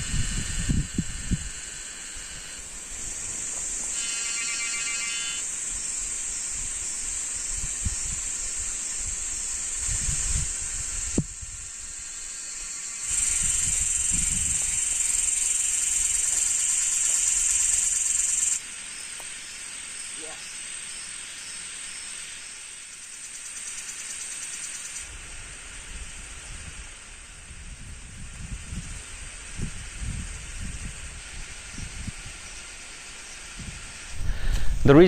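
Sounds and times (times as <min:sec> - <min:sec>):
insects buzzing: 0:00.0 - 0:35.0
short pulsing trill: 0:04.0 - 0:05.4.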